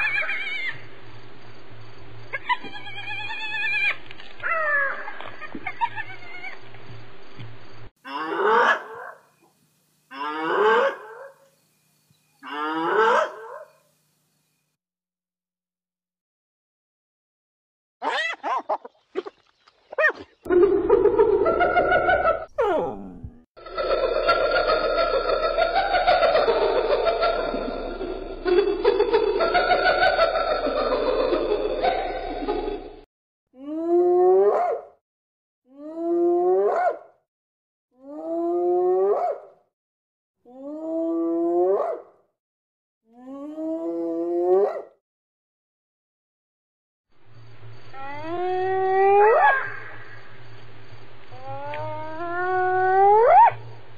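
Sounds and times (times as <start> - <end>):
hyena giggling: 20.5 - 33.0
hyena whooping: 22.5 - 23.4, 48.0 - 49.8, 51.4 - 53.6.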